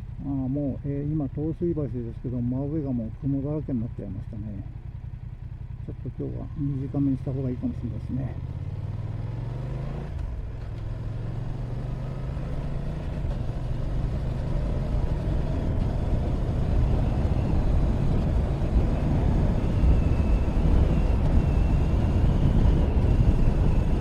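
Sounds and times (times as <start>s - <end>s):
motorcycle engine: 4.3s - 24.0s
wind rumble: 12.4s - 24.0s.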